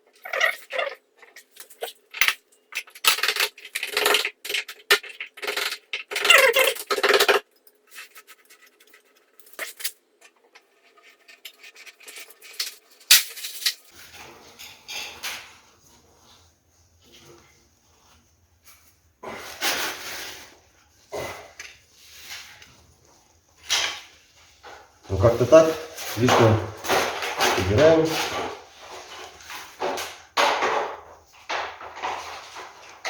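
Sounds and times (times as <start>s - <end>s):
sheet metal parts clinking and scraping: 10.8s - 15.5s.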